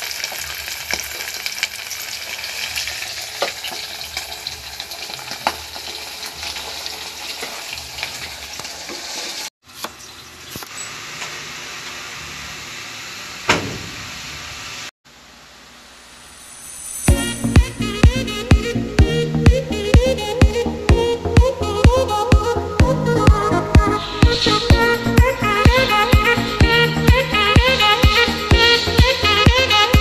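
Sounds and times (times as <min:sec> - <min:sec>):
chicken deep-frying in oil: 0:00.0 - 0:14.9.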